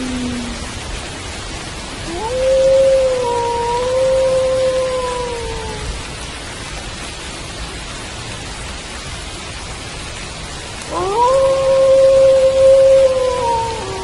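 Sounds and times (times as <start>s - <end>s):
wolf howling: 0.0s - 0.7s, 2.1s - 6.0s, 10.9s - 14.0s
steady rain falling: 0.0s - 14.0s.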